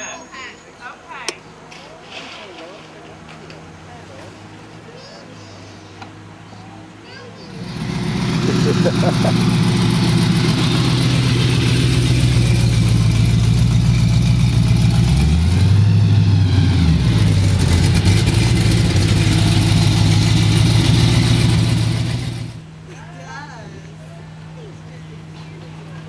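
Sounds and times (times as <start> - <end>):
car engine idling: 7.4 - 26.0.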